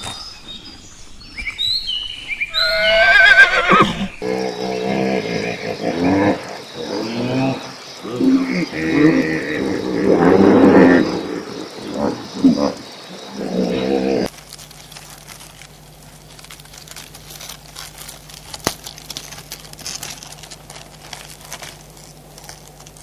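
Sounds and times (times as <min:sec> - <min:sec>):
hippopotamuses grunting and honking: 0:04.2 - 0:14.3
low steady hum: 0:11.1 - 0:23.0
hermit crabs clicking and scratching: 0:14.2 - 0:23.0.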